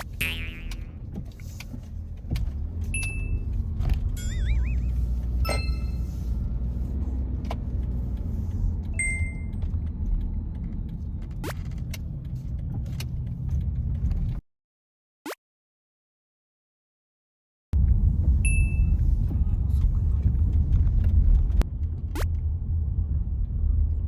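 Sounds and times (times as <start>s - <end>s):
car road rumble inside cabin: 0.0s - 14.4s, 17.8s - 24.0s
ringing chime tones: 4.2s - 6.1s.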